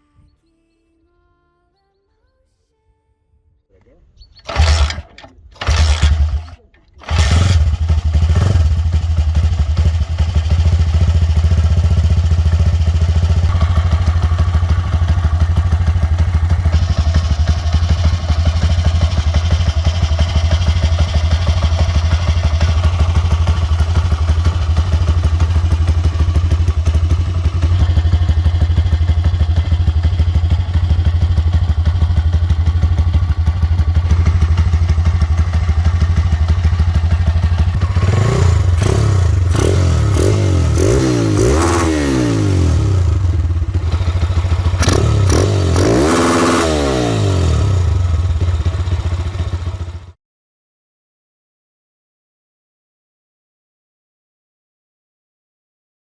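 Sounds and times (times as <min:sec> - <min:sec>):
mechanical clatter: 0:04.5 - 0:07.8
motorcycle engine running: 0:04.5 - 0:50.2.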